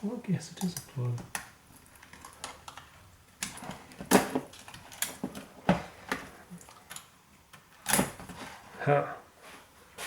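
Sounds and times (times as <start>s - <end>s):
clicks and knocks of handled electronics: 0.6s - 8.4s.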